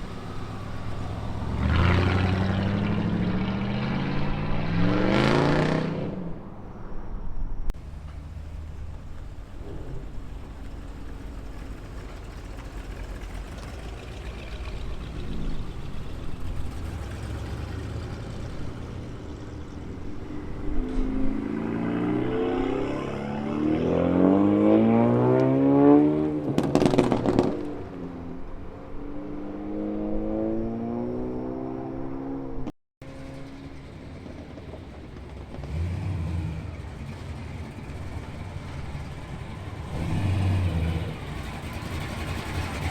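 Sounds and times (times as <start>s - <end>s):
car accelerating hard: 0.0s - 6.5s, 9.4s - 42.9s
car exhaust rumbling: 0.0s - 6.6s, 7.7s - 23.5s, 26.0s - 28.7s.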